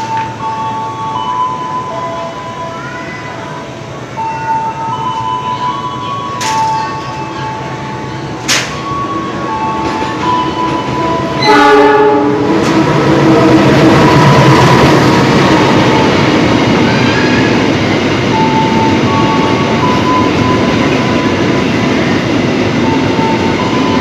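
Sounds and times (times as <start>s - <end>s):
freight train rumbling past: 0.0s - 24.0s
locomotive horn: 11.3s - 14.6s.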